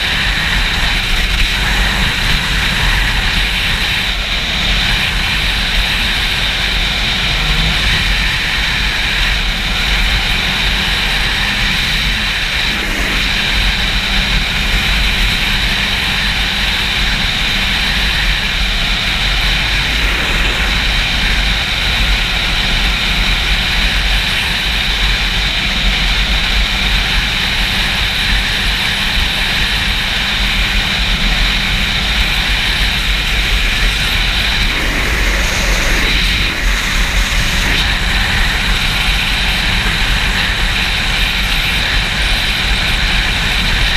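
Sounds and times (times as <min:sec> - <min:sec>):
motorcycle engine running: 0:00.0 - 0:43.9
wind buffeting microphone: 0:00.0 - 0:43.9.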